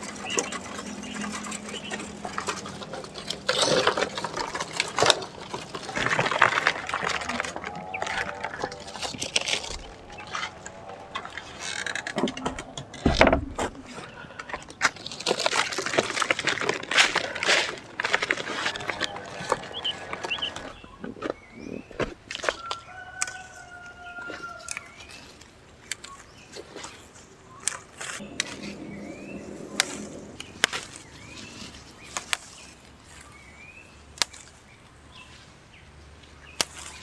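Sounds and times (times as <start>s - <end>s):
cage rattling and rustling: 0.0s - 23.1s, 27.8s - 33.2s
high bird chirps: 27.5s - 33.9s.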